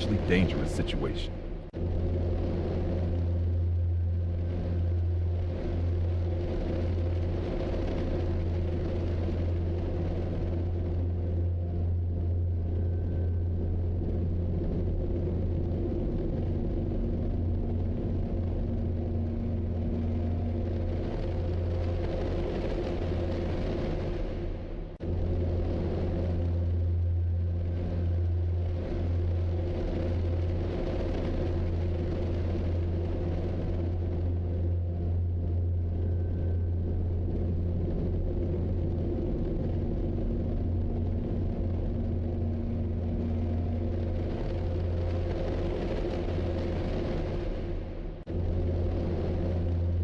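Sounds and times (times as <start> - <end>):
road noise: 0.0 - 1.7
vehicle engine rumble: 0.0 - 50.0.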